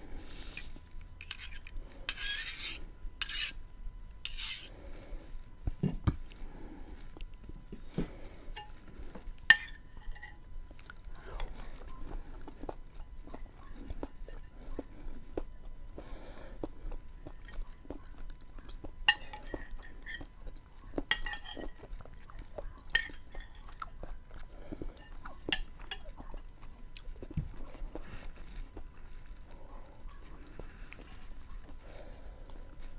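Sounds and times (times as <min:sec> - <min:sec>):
spoon clinking against dish: 0:01.2 - 0:03.5, 0:09.5 - 0:10.4, 0:19.1 - 0:20.2, 0:21.1 - 0:21.8, 0:22.9 - 0:23.6
wet chewing sounds: 0:10.6 - 0:32.9.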